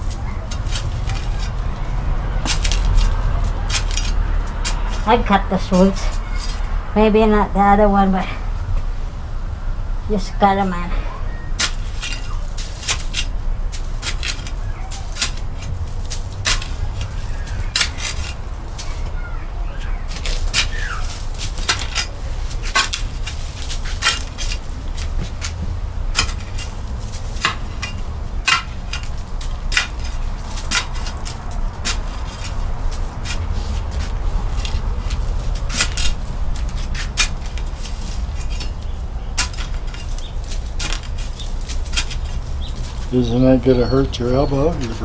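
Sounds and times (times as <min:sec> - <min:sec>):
digging tool chopping into dirt: 0:11.6 - 0:19.0.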